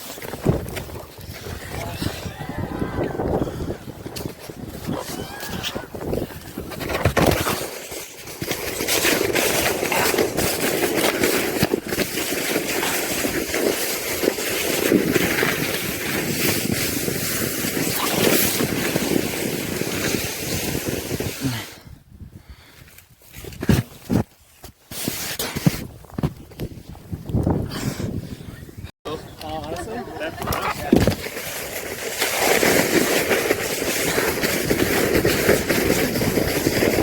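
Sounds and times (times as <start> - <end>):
wind buffeting microphone: 0.0 - 7.5, 25.8 - 31.3, 33.5 - 37.0.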